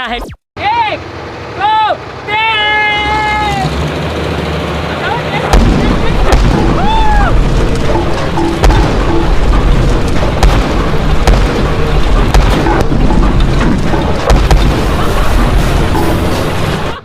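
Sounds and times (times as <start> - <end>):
road roller rumbling: 0.6 - 17.0
drum cracking over tubes: 5.5 - 16.8.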